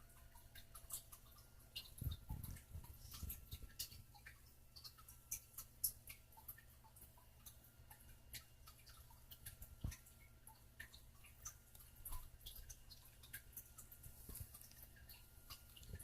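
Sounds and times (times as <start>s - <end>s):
parakeet beak clicking: 0.2s - 16.0s.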